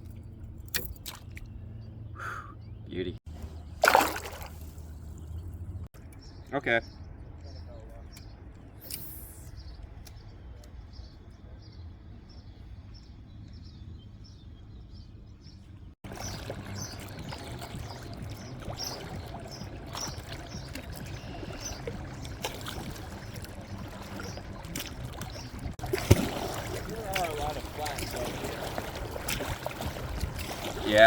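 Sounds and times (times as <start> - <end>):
water noise: 3.3 - 5.9, 16.0 - 31.0.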